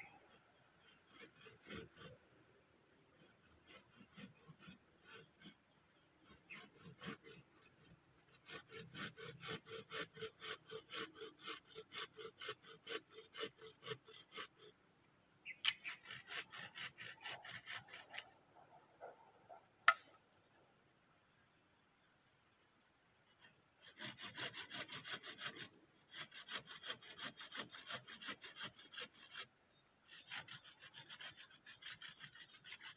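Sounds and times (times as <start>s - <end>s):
hand saw cutting wood: 0.8s - 2.3s, 3.2s - 5.6s, 6.2s - 14.7s, 15.6s - 18.3s, 23.8s - 29.5s, 30.1s - 32.9s.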